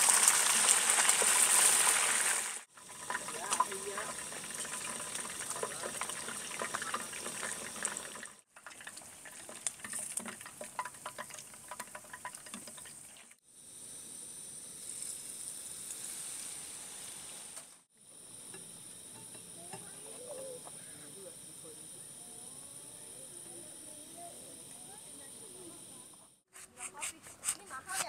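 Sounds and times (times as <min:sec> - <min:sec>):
food frying and sizzling: 0:00.0 - 0:20.7.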